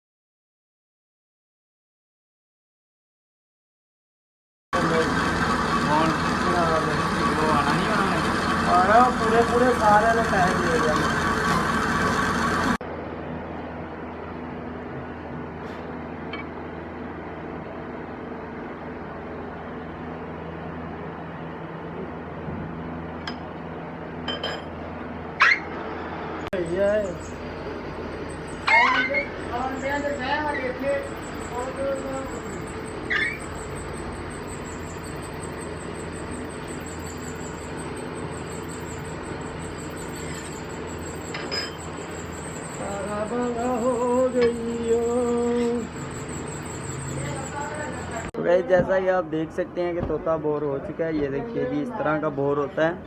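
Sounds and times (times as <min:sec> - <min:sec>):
lathe humming: 0:04.8 - 0:12.8, 0:26.7 - 0:48.3.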